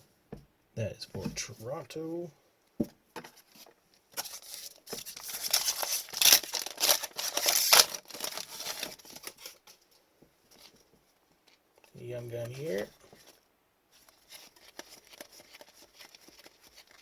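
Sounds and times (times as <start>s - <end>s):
foil wrapper tearing and crinkling: 4.2s - 9.8s, 14.2s - 17.0s.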